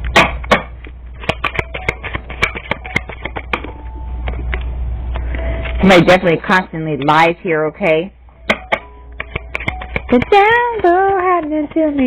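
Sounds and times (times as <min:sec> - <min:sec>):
cards being shuffled: 0:01.2 - 0:03.8, 0:08.5 - 0:12.0.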